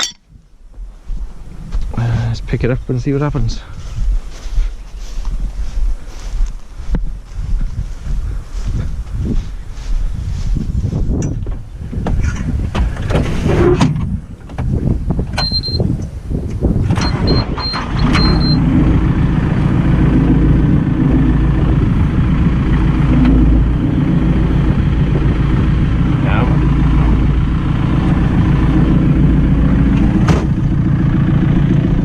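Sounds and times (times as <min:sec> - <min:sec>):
metal clanks and knocks: 0:00.0 - 0:00.3
diesel tractor engine under load: 0:05.0 - 0:32.0
short high beeps: 0:15.4 - 0:15.8, 0:17.0 - 0:18.6.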